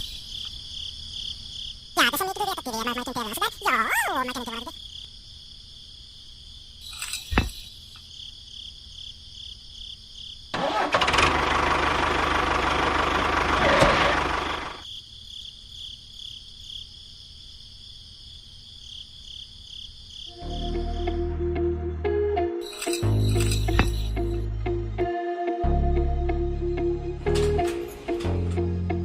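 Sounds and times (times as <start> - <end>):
crickets chirping: 0.0 - 10.6, 14.5 - 24.4.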